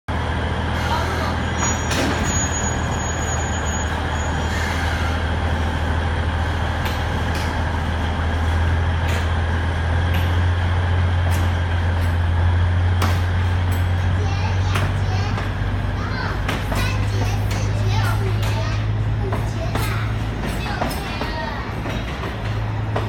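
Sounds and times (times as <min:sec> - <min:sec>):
diesel locomotive droning: 0:00.1 - 0:23.0.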